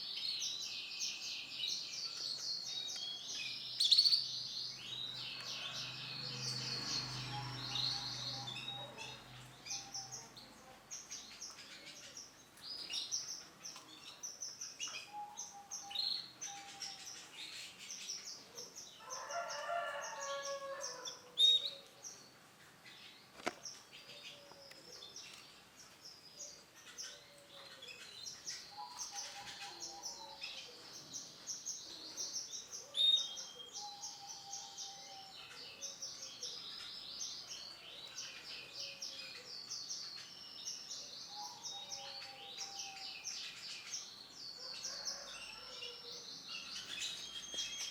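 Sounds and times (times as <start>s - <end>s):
canary trilling and chirping: 1.8s - 10.1s.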